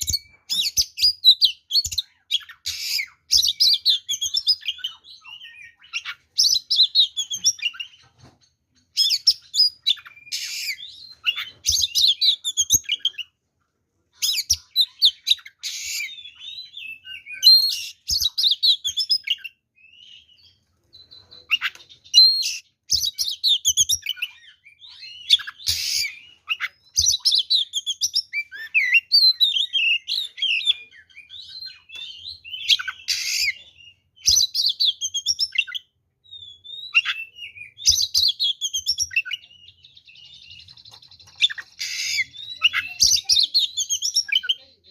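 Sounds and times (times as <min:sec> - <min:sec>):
songbird singing: 0:14.2 - 0:44.9.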